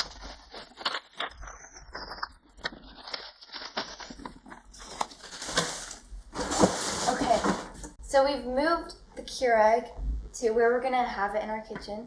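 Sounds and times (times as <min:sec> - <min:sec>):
cardboard and plastic packaging rustling: 0:00.0 - 0:08.0.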